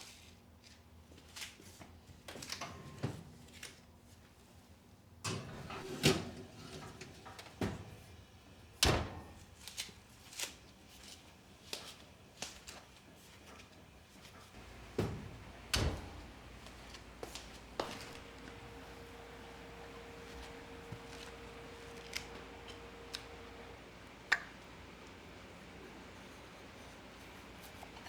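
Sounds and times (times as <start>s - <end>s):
kitchen knocks and clacks: 14.6s - 18.8s.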